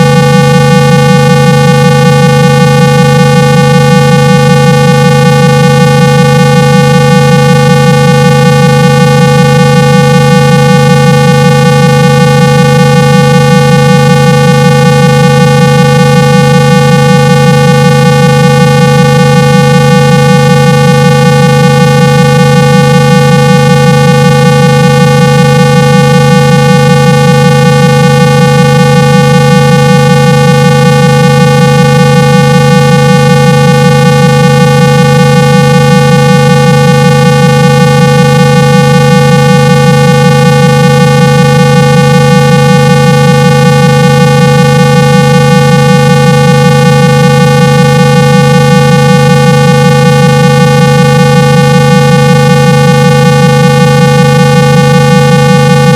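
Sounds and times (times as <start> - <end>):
electronic hum from phone speaker: 0.0 - 55.9
loud buzzy low test tone: 0.0 - 55.9.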